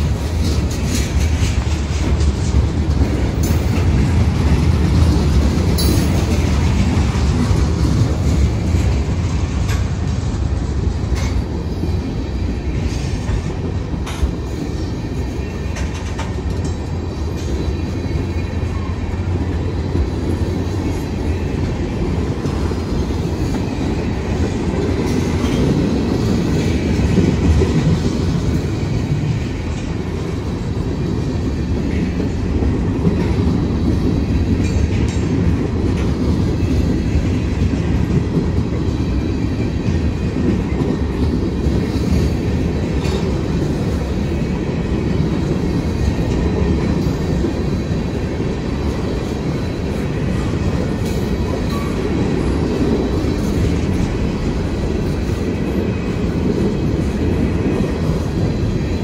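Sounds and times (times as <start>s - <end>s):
steel train wheels rumbling on rails: 0.0s - 59.0s.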